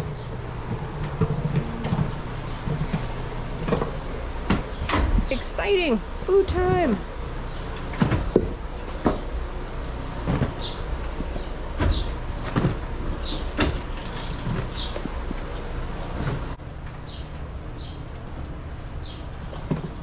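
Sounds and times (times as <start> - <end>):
low machine hum: 0.0 - 20.0
knocks and clanks: 0.7 - 5.4, 10.2 - 16.5.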